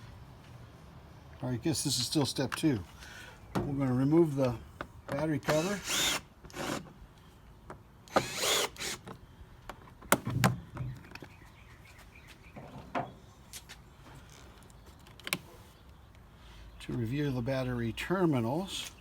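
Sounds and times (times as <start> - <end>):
cordless drill whirring: 5.4 - 6.8, 8.1 - 9.1.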